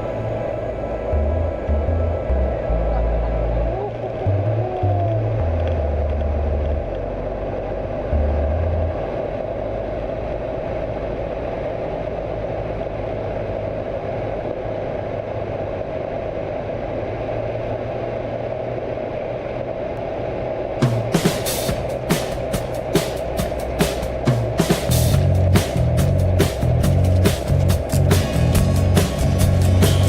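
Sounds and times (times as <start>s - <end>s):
low bass music: 0.0s - 11.0s, 20.9s - 30.0s
light aircraft engine and propeller: 6.5s - 30.0s.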